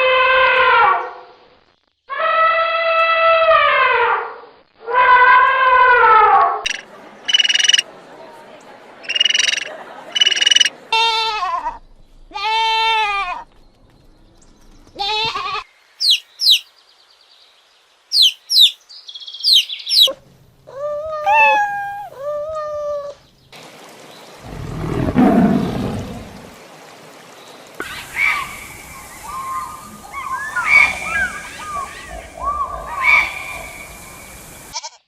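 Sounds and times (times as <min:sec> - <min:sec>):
very high falling chirps: 0:06.7 - 0:07.8, 0:09.0 - 0:10.7, 0:16.0 - 0:16.7, 0:18.1 - 0:20.2, 0:27.8 - 0:34.7
pitched animal calls: 0:19.5 - 0:23.2, 0:27.8 - 0:34.0.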